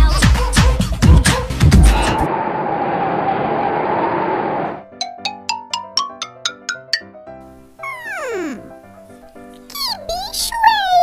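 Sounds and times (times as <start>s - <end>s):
children's music with chords: 5.0s - 9.3s.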